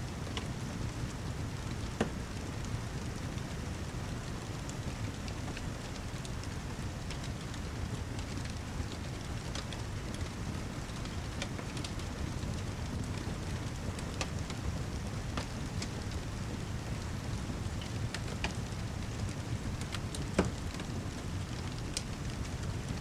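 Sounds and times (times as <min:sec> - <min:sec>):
fire crackles: 0:00.1 - 0:23.0.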